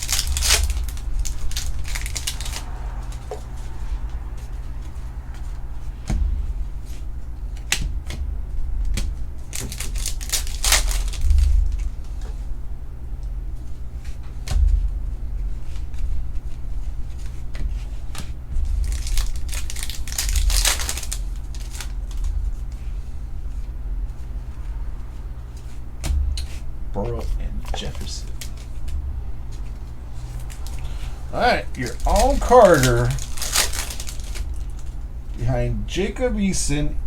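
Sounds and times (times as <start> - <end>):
foil wrappers crinkling and ripping: 0.0 - 6.2, 8.8 - 12.2, 15.6 - 23.5, 24.1 - 35.2
steady low hum: 0.0 - 37.0
cards clicking and knocking: 31.6 - 34.6.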